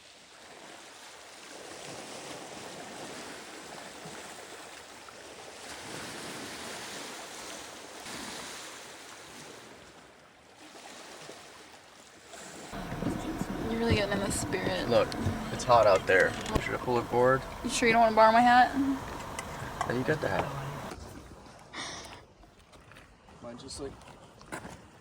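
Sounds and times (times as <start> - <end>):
surf washing onto beach: 12.8 - 20.9.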